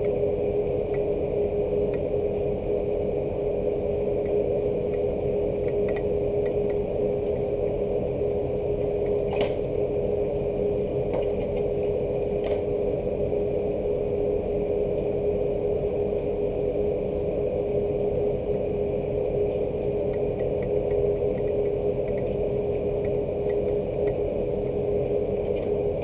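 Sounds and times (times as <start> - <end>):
constant pitched tone: 0.0 - 26.0
low mechanical hum: 0.0 - 26.0
faint ticks: 23.0 - 24.2.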